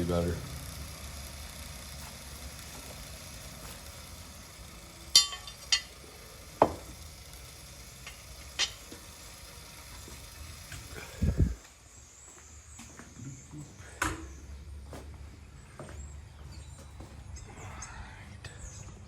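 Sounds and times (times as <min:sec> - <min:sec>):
metallic clinks: 0:05.1 - 0:06.0.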